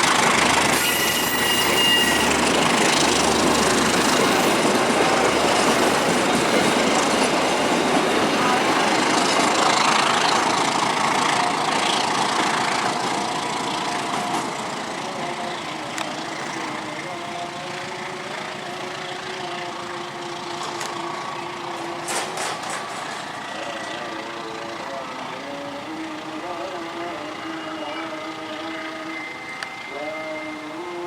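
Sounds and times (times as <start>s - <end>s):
passing train: 0.0s - 31.0s
engine idling: 8.9s - 30.8s.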